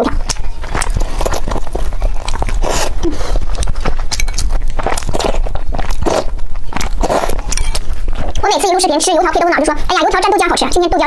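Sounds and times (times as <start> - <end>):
wet mouth sounds: 0.0 - 8.5
crisp chewing crunches: 0.1 - 8.5.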